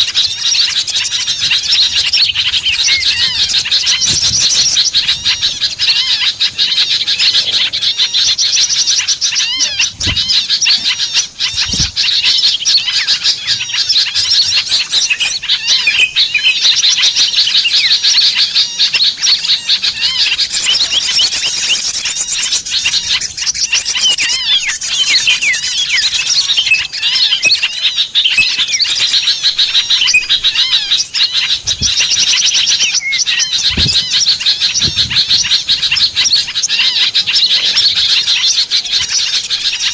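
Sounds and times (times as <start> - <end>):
songbirds chirping and twittering: 0.0 - 39.9.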